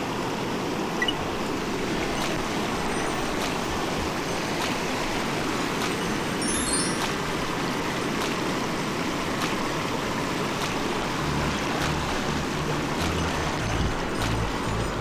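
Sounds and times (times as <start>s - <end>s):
stream rushing: 0.0s - 15.0s
bass notes of background music: 11.2s - 15.0s.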